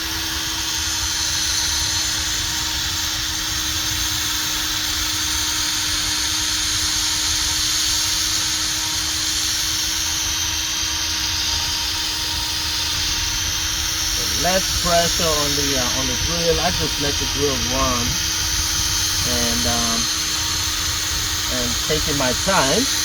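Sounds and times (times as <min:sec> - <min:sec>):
power sander whirring: 0:00.0 - 0:23.0
abrasive hissing on wet lens: 0:12.9 - 0:23.0.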